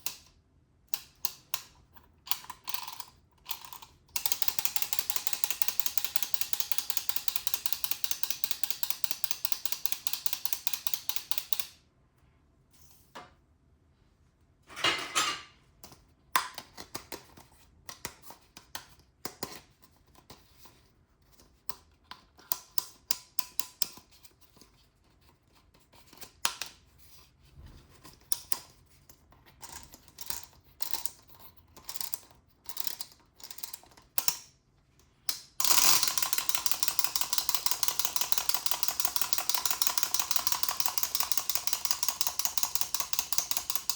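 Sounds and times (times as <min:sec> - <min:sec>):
plastic toy parts clicking: 0:00.9 - 0:11.8, 0:21.7 - 0:24.2, 0:29.6 - 0:34.5, 0:35.3 - 0:43.9.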